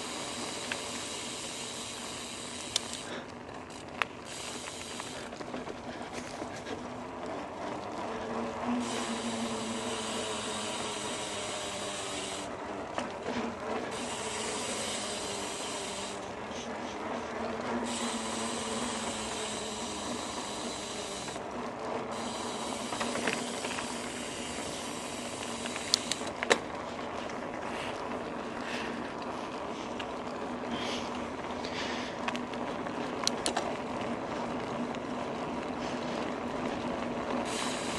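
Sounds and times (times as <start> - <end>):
bike tyre and drivetrain noise: 0.0 - 37.9
hiss: 8.8 - 12.5, 14.0 - 16.2, 17.8 - 21.4, 37.5 - 37.9
sharp clicks: 25.4 - 26.6, 33.2 - 33.7.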